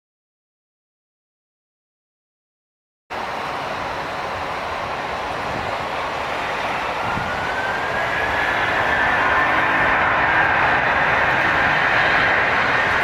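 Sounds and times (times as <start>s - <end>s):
jet engines rushing: 3.1s - 13.0s
rising engine whine: 3.2s - 13.0s.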